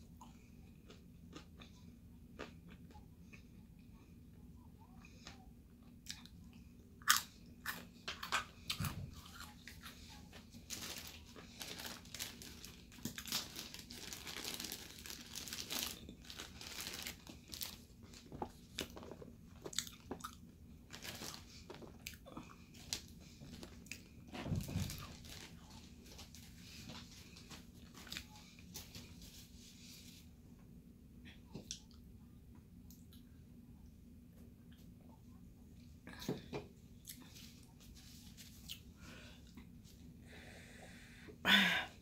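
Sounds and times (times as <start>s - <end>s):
crunching and chewing crispy food: 0.0s - 3.9s, 5.0s - 29.1s.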